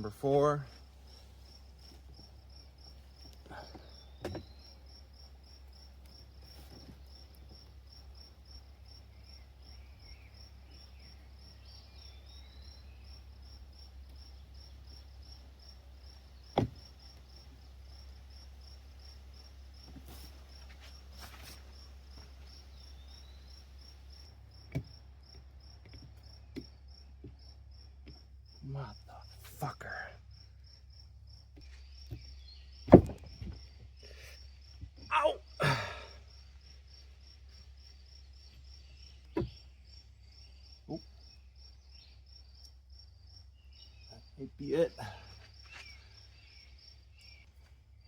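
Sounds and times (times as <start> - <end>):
crickets chirping: 0.0 - 48.0
sharp knocks: 32.9 - 33.6.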